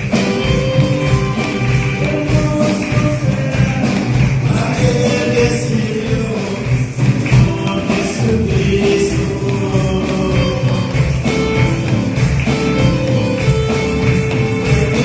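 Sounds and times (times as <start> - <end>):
band playing gospel music: 0.0 - 15.0
tambourine: 0.0 - 15.0
people singing: 1.7 - 11.2, 14.4 - 15.0.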